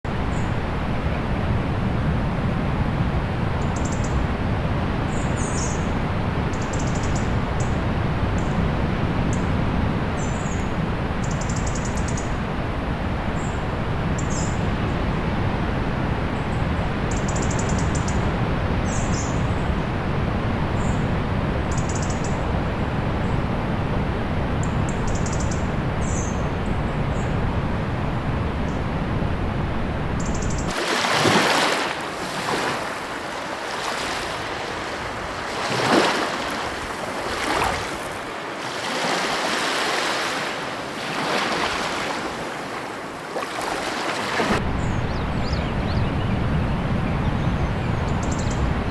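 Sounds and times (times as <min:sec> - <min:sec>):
rushing surf or wind: 0:00.1 - 0:48.9
small birds chirping: 0:44.7 - 0:48.8.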